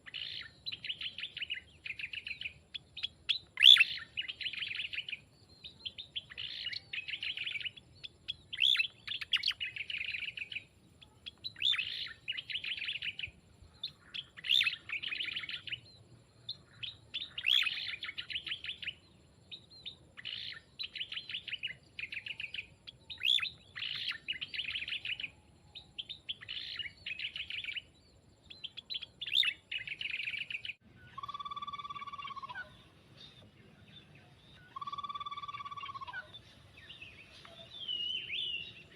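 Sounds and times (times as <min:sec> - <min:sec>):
small songbird chattering: 0:00.0 - 0:15.9, 0:16.5 - 0:25.3, 0:25.9 - 0:27.9, 0:28.5 - 0:33.4, 0:34.5 - 0:38.9
clear pitched bird call: 0:28.6 - 0:33.4, 0:34.0 - 0:38.9.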